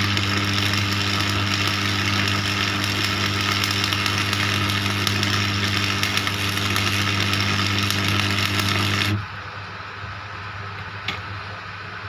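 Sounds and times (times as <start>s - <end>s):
arc welding crackle and sizzle: 0.0s - 9.4s
welder hum: 0.0s - 9.5s.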